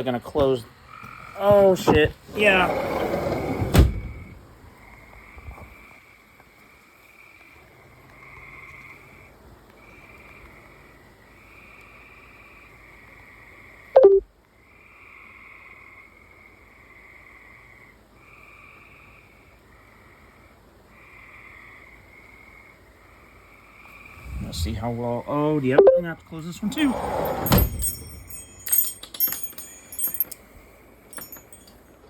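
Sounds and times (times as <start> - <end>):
frogs calling: 0.7 - 1.8, 4.8 - 13.9, 14.5 - 26.1.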